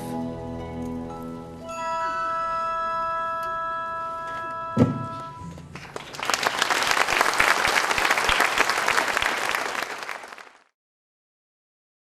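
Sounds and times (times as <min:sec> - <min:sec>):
orchestral chord: 0:01.4 - 0:05.6
audience applauding: 0:05.6 - 0:10.7.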